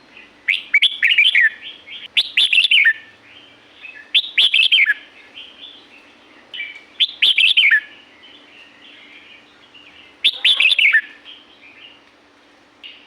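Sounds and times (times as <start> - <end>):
bird singing chirpy phrases: 0.1 - 12.0
soft bird warbling: 10.2 - 11.3.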